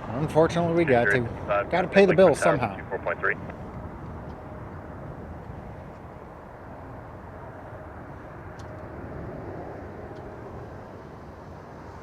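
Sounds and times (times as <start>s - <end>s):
distant jet engines rumbling: 0.0s - 12.0s.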